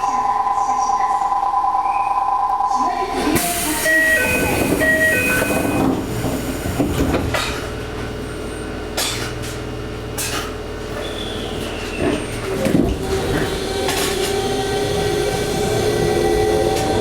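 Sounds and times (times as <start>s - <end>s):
train rolling noise: 3.1s - 17.0s
wheels clacking on rails: 3.3s - 17.0s
electric train motor whine: 13.0s - 17.0s.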